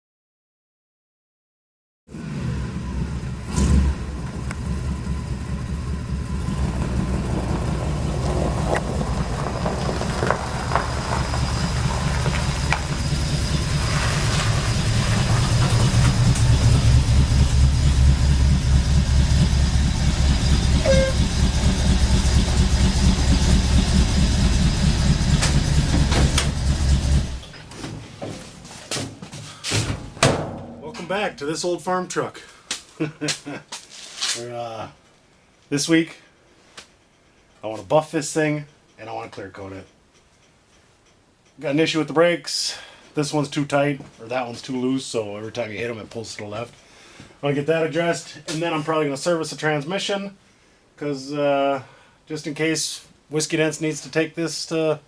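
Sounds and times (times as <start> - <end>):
pickup engine running: 2.4 - 28.2
single thump: 29.8 - 31.0.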